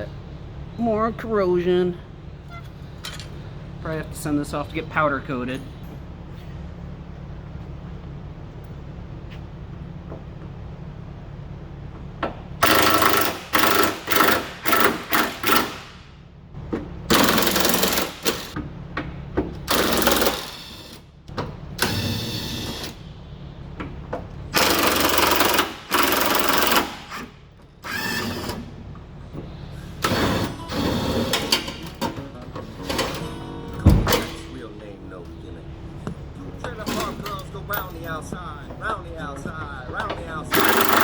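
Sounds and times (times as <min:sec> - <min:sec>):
impact wrench hammering: 0:12.2 - 0:16.1, 0:16.7 - 0:22.9, 0:24.6 - 0:28.7, 0:36.6 - 0:41.0.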